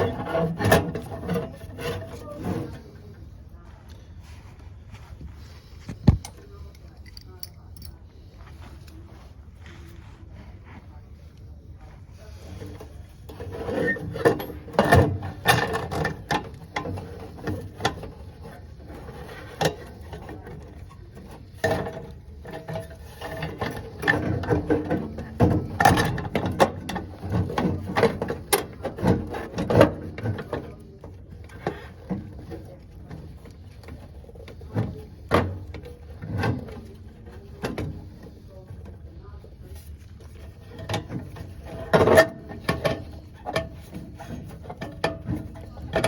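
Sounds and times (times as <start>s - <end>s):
hand tools clicking on metal fittings: 6.2s - 8.0s.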